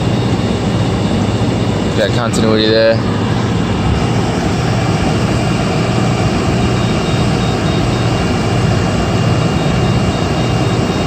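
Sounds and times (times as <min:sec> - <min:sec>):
condenser fan rushing air: 0:00.0 - 0:11.0.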